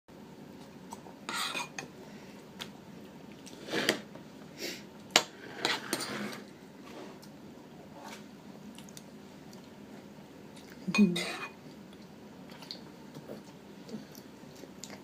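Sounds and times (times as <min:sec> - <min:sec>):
spoon scraping in a bowl: 0:01.3 - 0:01.8, 0:05.3 - 0:06.5.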